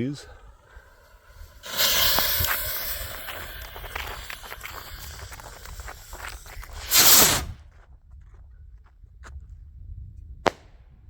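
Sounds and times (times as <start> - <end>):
rocket launch whoosh: 1.3 - 7.6.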